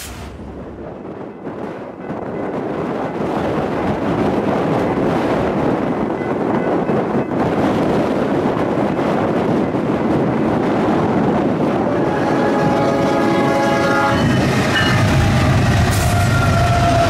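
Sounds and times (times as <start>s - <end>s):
locomotive engine rumble: 0.0s - 17.0s
rail noise: 0.0s - 17.0s
locomotive air horn: 11.8s - 17.0s.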